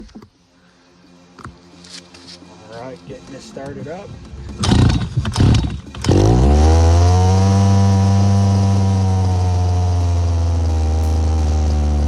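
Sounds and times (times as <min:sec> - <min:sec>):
small two-stroke engine cranking: 0:04.6 - 0:12.0
small two-stroke engine idling: 0:04.6 - 0:12.0.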